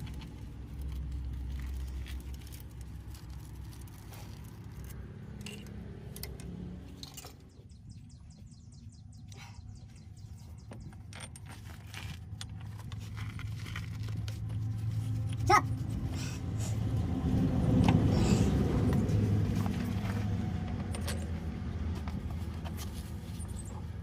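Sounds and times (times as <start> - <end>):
metal tools clinking and scraping: 0.0 - 7.6, 10.7 - 14.3, 20.8 - 24.0.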